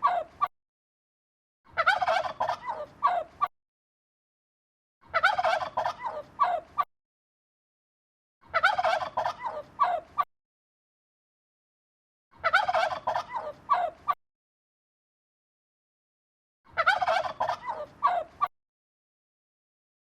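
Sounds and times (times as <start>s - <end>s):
fowl warbling calls: 1.7s - 3.5s, 5.1s - 6.8s, 8.5s - 10.2s, 12.4s - 14.2s, 16.7s - 18.5s.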